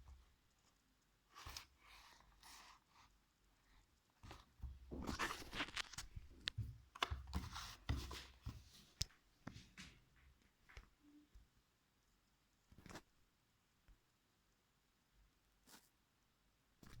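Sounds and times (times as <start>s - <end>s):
packaging rustling and scraping: 4.8s - 6.5s.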